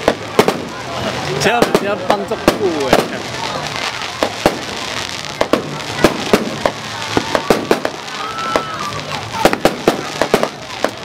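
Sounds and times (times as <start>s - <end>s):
fireworks bangs and crackle: 0.0s - 11.0s
firework whistle: 5.5s - 11.0s.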